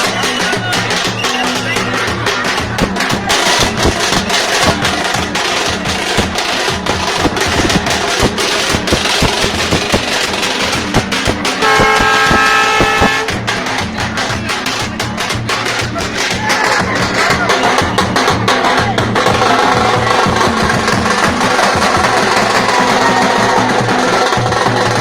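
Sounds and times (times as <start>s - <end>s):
rapid drumming and percussion: 0.0s - 25.0s
horn blast: 11.6s - 13.5s.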